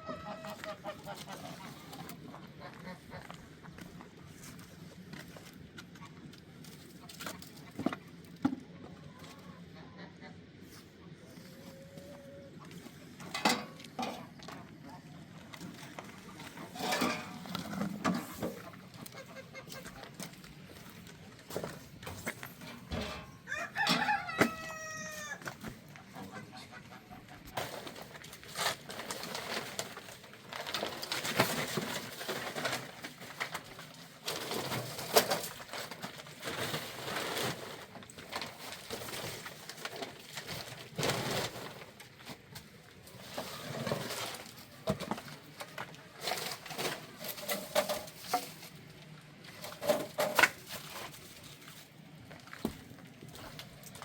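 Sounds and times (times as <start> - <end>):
chickens clucking: 0.0 - 4.5, 5.9 - 35.4
rooster crowing: 23.4 - 25.5.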